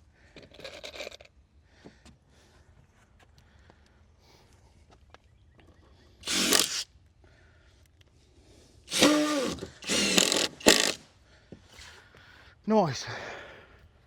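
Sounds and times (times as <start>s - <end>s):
power drill driving screws: 6.2s - 6.8s, 8.9s - 11.0s.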